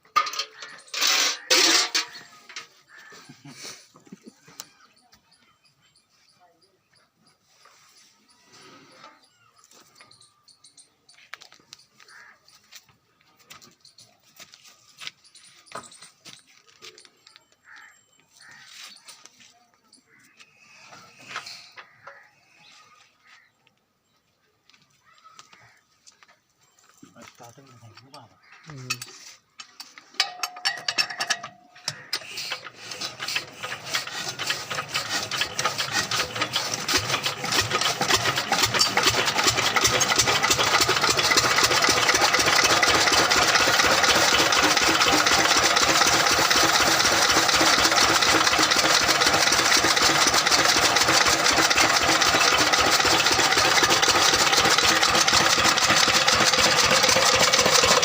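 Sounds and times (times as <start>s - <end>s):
engine starting and running: 0.0s - 3.1s, 29.8s - 58.0s.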